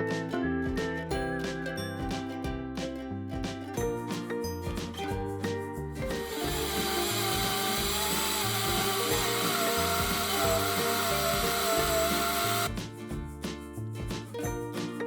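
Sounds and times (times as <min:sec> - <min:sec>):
background music with steady beat: 0:00.0 - 0:15.0
blender motor whining: 0:06.2 - 0:12.7.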